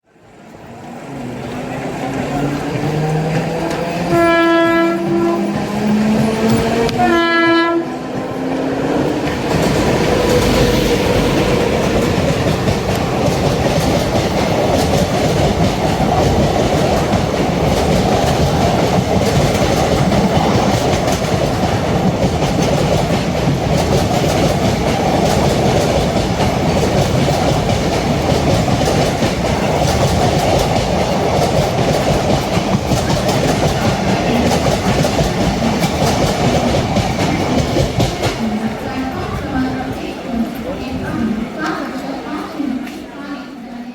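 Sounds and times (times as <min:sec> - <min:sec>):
train coaches rumbling past: 0:00.1 - 0:43.9
wheels clickety-clack: 0:01.4 - 0:07.2, 0:08.1 - 0:43.0
locomotive horn blasts: 0:04.1 - 0:05.7, 0:07.0 - 0:08.0.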